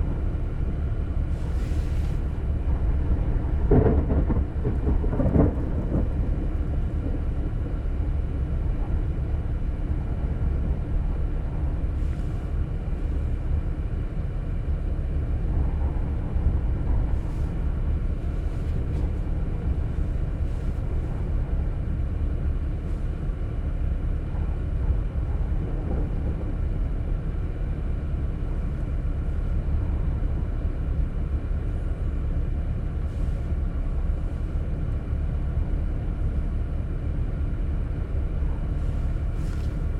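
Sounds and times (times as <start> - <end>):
thunder rumbling: 0.0 - 11.9, 23.6 - 32.4
steady low rumbling: 0.0 - 39.9.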